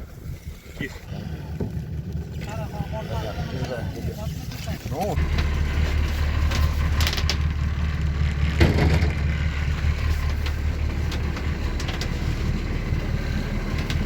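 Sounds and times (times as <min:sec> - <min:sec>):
diesel engine idling: 0:05.1 - 0:14.0.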